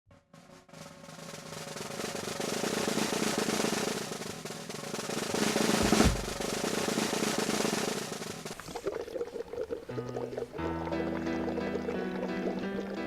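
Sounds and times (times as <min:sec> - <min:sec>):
snare drum roll: 0:00.1 - 0:08.8
heavy low drum hit: 0:05.4 - 0:06.8.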